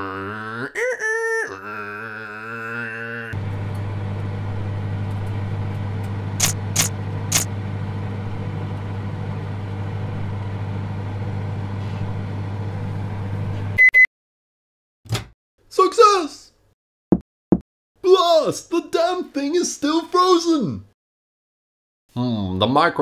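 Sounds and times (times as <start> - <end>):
microwave oven humming: 3.4 - 13.9
sharp clicks: 6.4 - 7.5.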